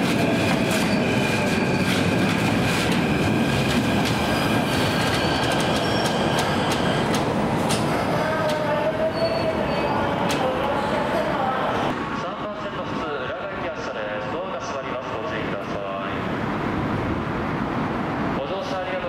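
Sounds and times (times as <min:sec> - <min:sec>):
train running rumble: 0:00.0 - 0:09.4.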